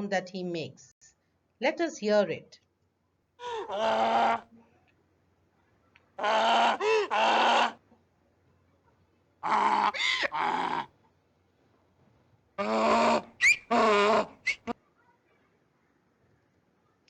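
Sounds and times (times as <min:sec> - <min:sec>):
donkey braying: 0:03.4 - 0:04.4, 0:06.2 - 0:07.8, 0:09.4 - 0:10.9, 0:12.6 - 0:14.7.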